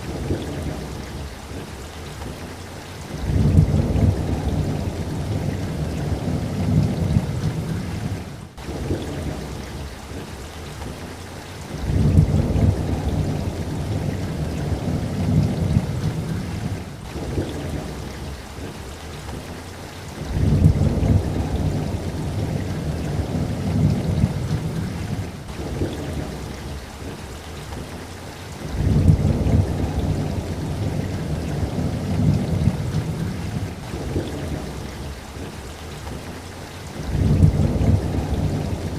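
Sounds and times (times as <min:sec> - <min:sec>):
steady rain: 0:00.0 - 0:38.9
rolling thunder: 0:03.1 - 0:09.4, 0:11.7 - 0:18.3, 0:20.2 - 0:27.2, 0:28.6 - 0:36.3, 0:37.0 - 0:38.9.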